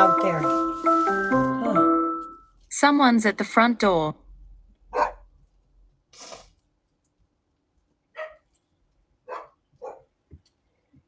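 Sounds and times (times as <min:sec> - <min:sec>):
dog barking: 0:04.9 - 0:05.3, 0:08.1 - 0:08.5, 0:09.2 - 0:10.2.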